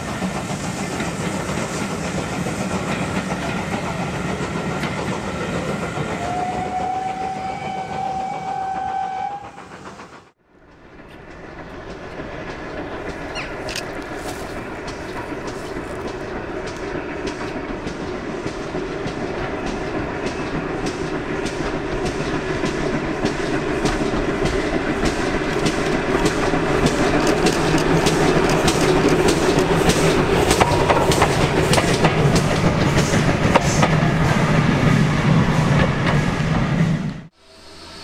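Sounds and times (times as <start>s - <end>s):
train wheels clicking over rail joints: 0.0s - 37.2s.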